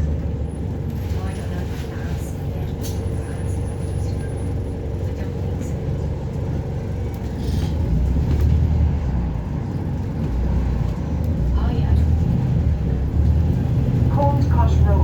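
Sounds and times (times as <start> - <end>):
bus engine rumbling: 0.0 - 15.0.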